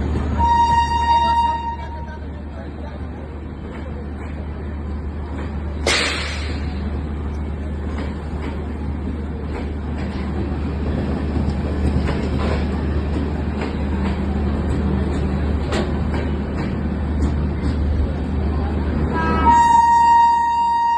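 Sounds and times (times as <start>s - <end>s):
train rolling by: 0.0s - 20.9s
wheels clicking over rail joints: 7.7s - 18.2s.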